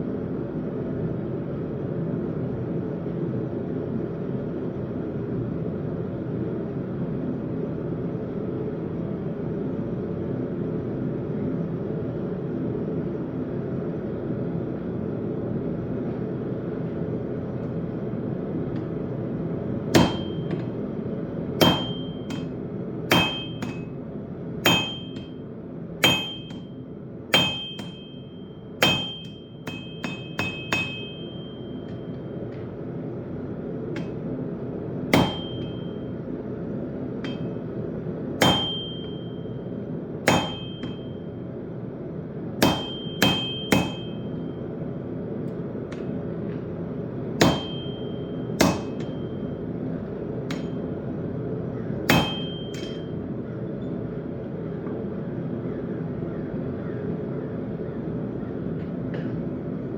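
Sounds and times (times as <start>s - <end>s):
hammer striking steel on anvil: 19.9s - 20.9s, 21.6s - 24.0s, 24.6s - 32.8s, 33.9s - 34.4s, 35.1s - 36.4s, 37.2s - 41.3s, 42.6s - 44.6s, 45.9s - 46.6s, 47.4s - 49.7s, 50.4s - 51.0s, 52.0s - 53.2s.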